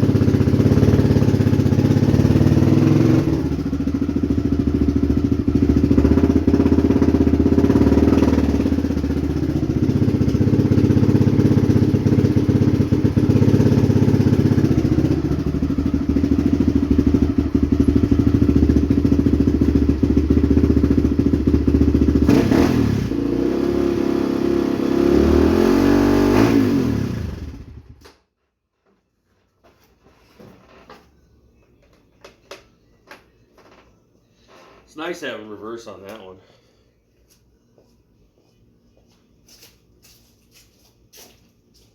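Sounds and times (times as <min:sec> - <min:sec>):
quad bike engine idling: 0:00.0 - 0:23.4, 0:26.9 - 0:28.0.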